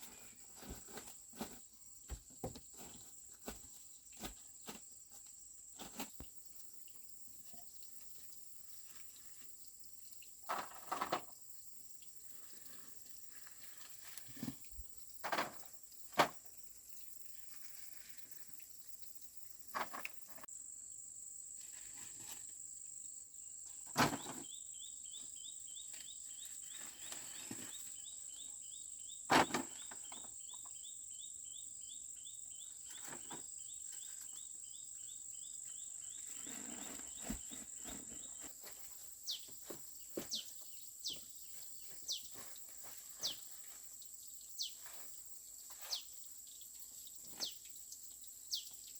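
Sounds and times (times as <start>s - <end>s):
insects droning: 0.1s - 48.9s
fast chirping insect: 4.0s - 48.9s.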